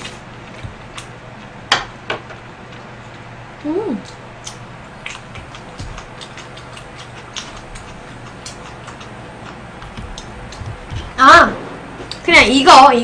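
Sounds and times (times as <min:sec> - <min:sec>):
person chewing with wet clicks: 0:00.0 - 0:01.6, 0:02.6 - 0:11.2.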